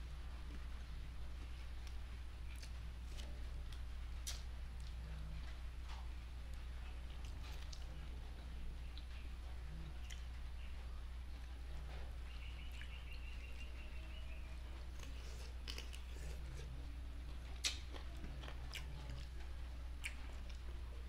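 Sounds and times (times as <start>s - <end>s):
steady low hum: 0.0s - 21.0s
person chewing with wet clicks: 1.3s - 14.0s, 14.8s - 21.0s
faint high chirping: 12.2s - 15.4s.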